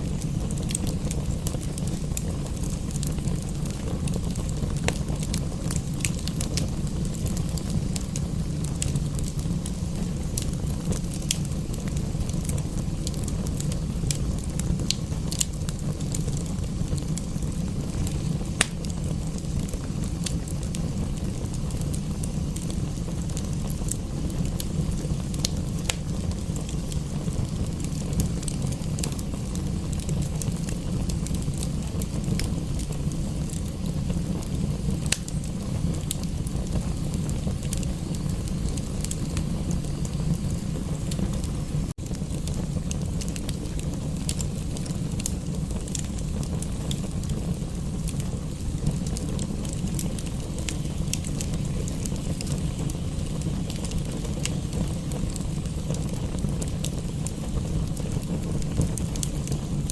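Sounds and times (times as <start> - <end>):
fire low rumble: 0.0 - 59.9
fire sharp pops: 0.0 - 59.9
wood fire crackling: 0.0 - 59.9.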